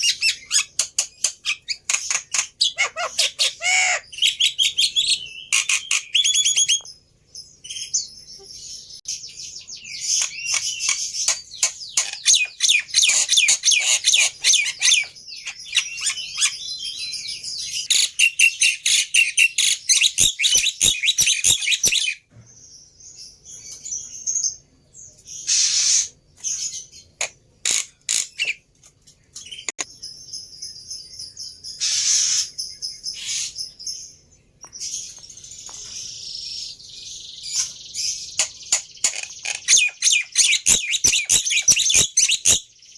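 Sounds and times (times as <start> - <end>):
bird chirps and whistles: 1.4 - 6.9, 9.2 - 22.2, 38.3 - 42.7.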